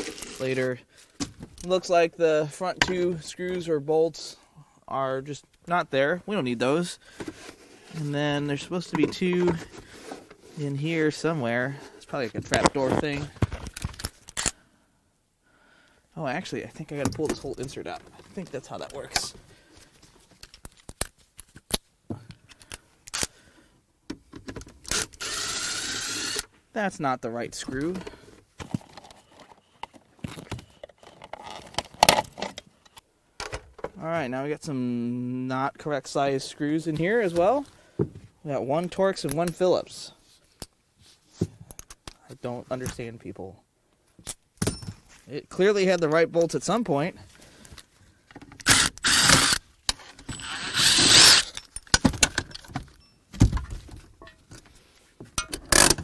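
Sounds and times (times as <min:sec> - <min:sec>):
scrape: 0:28.6 - 0:32.7
metal screws and tool clicking: 0:28.6 - 0:33.0.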